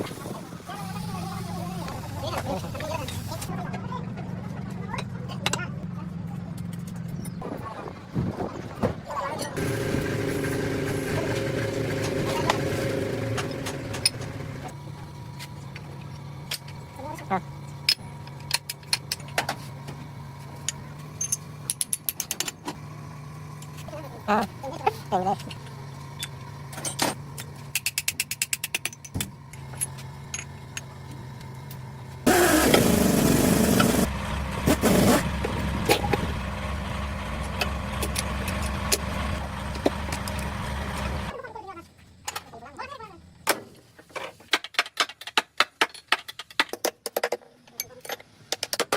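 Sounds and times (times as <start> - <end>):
motor humming: 9.6 - 17.7, 32.2 - 41.3.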